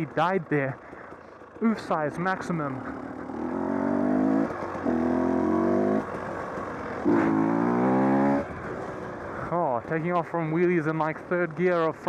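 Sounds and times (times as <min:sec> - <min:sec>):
dirt bike engine revving: 0:00.0 - 0:09.5.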